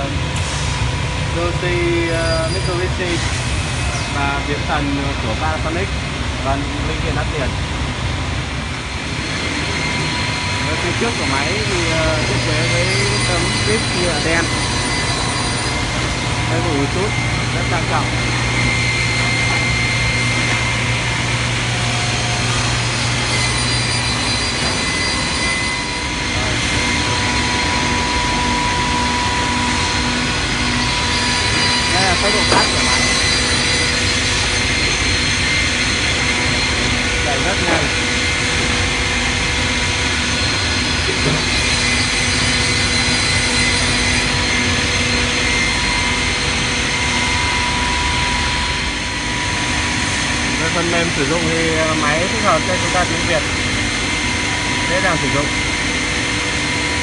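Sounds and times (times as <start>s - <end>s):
low machine hum: 0.0s - 57.0s
panel saw running: 9.0s - 57.0s.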